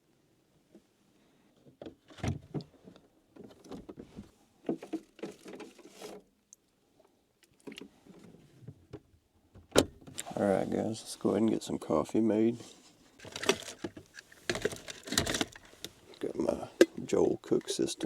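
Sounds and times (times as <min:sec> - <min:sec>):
knocks and clunks of handling: 0:01.6 - 0:06.2, 0:13.2 - 0:17.9
rustling: 0:12.6 - 0:18.0.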